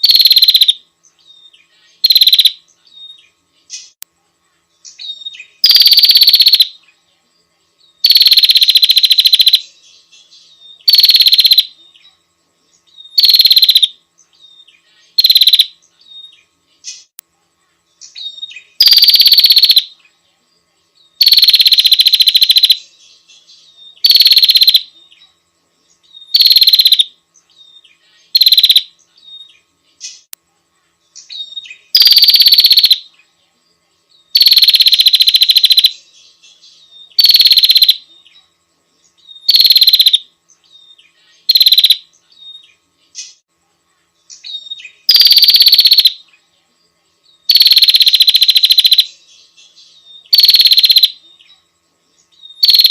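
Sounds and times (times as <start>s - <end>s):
bird buzzy chattering calls: 0.0s - 0.8s, 2.0s - 2.6s, 4.9s - 6.8s, 8.0s - 9.7s, 10.8s - 11.8s, 13.1s - 14.0s, 15.1s - 15.8s, 18.1s - 19.9s, 21.2s - 22.9s, 24.0s - 24.9s, 26.2s - 27.1s, 28.3s - 28.9s, 31.2s - 33.0s, 34.3s - 36.0s, 37.0s - 38.0s, 39.4s - 40.2s, 41.4s - 42.1s, 44.4s - 46.2s, 47.5s - 49.2s, 50.3s - 51.2s, 52.5s - 52.9s.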